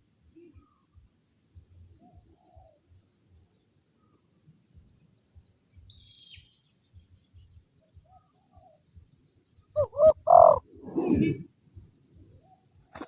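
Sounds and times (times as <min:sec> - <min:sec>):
small bird chirp: 0:00.3 - 0:01.0, 0:01.7 - 0:13.0
dove cooing: 0:09.8 - 0:11.5.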